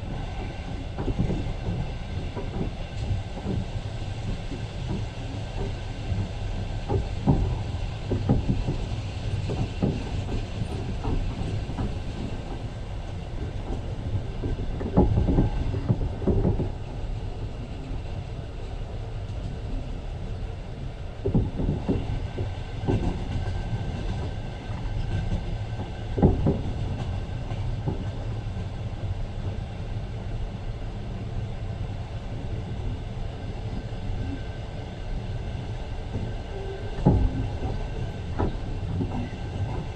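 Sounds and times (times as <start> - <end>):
train wheels rumbling: 0.0 - 39.9
wheels clacking over rail joints: 21.2 - 28.7, 35.6 - 39.9.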